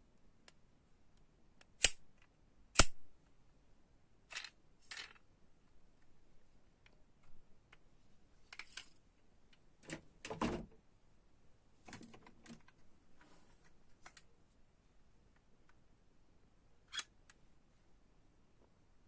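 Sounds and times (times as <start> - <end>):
toy cars clicking and clacking: 4.3 - 5.2.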